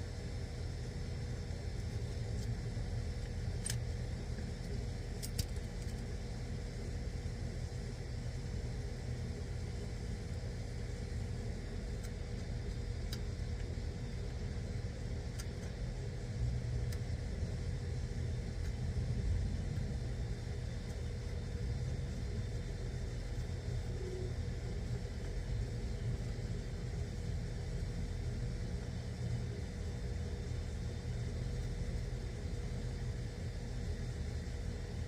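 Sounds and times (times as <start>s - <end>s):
air conditioning unit humming: 0.0s - 35.0s
faint handling clicks: 2.3s - 6.2s.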